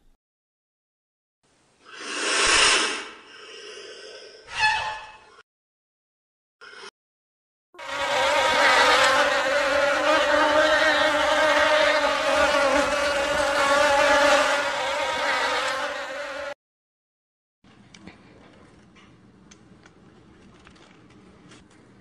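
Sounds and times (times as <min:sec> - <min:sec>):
honeybees buzzing: 0:07.8 - 0:16.6.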